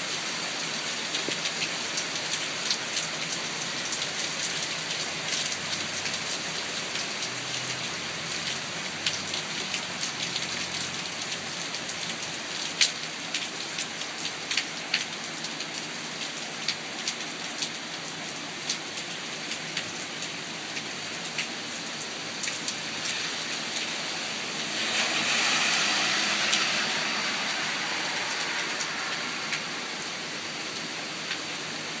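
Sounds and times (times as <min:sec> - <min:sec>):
steady rain: 0:00.0 - 0:32.0
rushing hiss: 0:22.3 - 0:31.9.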